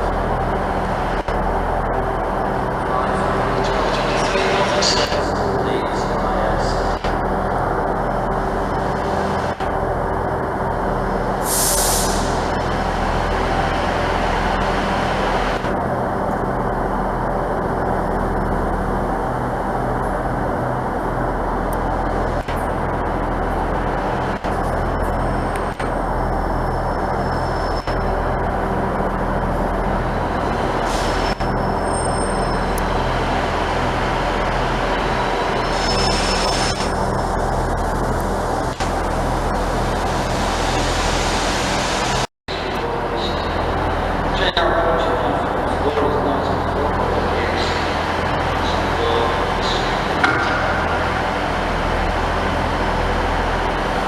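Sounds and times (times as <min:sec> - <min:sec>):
train engine droning: 0:00.0 - 0:54.0
air brake hissing: 0:11.4 - 0:12.4.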